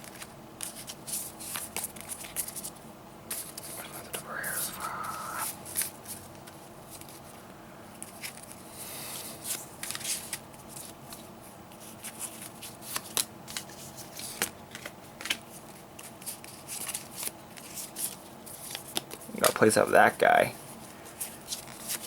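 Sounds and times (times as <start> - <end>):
cards sliding rustle: 21.1 - 22.0.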